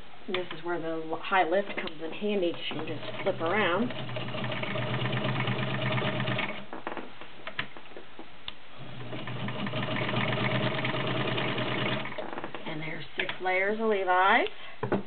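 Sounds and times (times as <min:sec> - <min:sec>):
sewing machine running: 0:03.0 - 0:06.6, 0:09.0 - 0:12.2.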